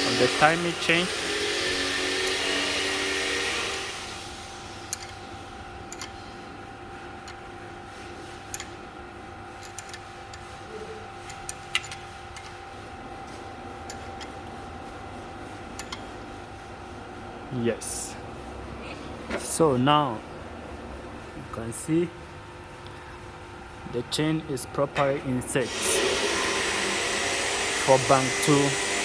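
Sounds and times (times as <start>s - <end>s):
machine whirr: 0.0s - 29.0s
hand tools clicking metal: 4.9s - 5.2s, 5.9s - 6.2s, 9.6s - 10.4s, 11.3s - 12.6s, 15.8s - 16.0s.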